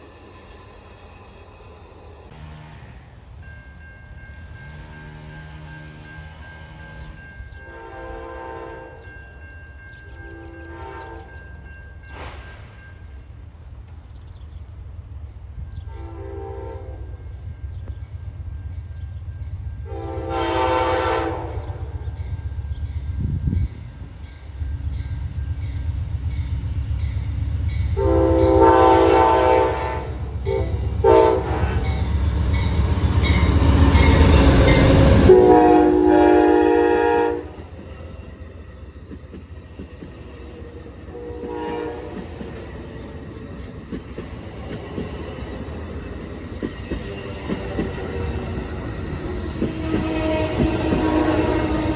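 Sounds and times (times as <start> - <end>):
diesel train rumble: 0.0 - 51.9
locomotive air horn: 2.3 - 3.1, 4.7 - 9.0, 10.3 - 11.3, 15.9 - 17.2, 19.9 - 21.9, 28.0 - 32.1, 35.0 - 37.7, 41.1 - 42.3, 49.6 - 51.9
faint horn call: 19.9 - 21.8, 35.2 - 37.6, 49.7 - 51.9.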